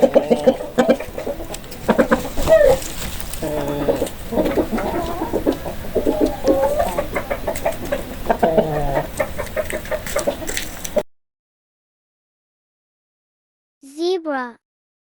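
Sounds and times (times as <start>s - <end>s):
chickens clucking: 0.0s - 11.1s.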